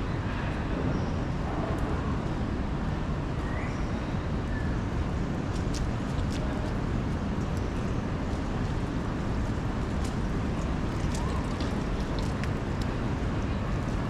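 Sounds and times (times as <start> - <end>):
city traffic: 0.0 - 14.0
rain: 5.6 - 14.0.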